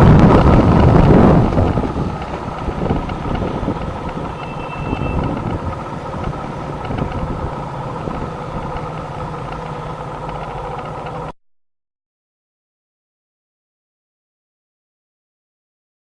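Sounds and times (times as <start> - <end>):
car engine: 0.0 - 11.4.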